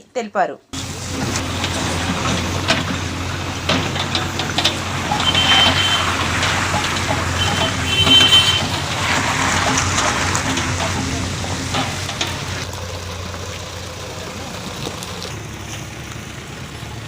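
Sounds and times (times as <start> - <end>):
machinery engine running: 0.8 - 17.0
clatter and knocks: 1.1 - 13.6.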